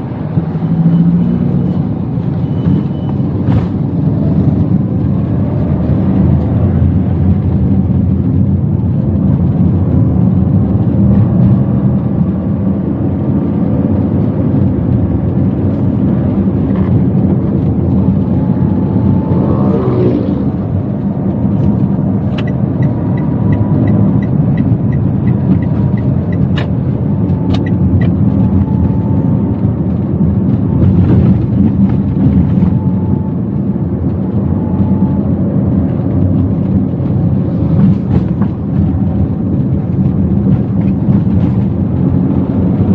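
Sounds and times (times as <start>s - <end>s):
road and engine rumble in car: 0.0s - 42.9s
wavering tone: 17.9s - 20.7s.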